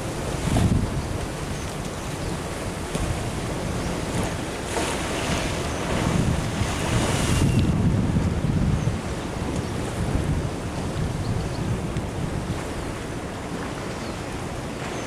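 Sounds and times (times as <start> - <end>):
wind buffeting microphone: 0.0 - 15.0
ocean surf washing in: 3.3 - 8.6.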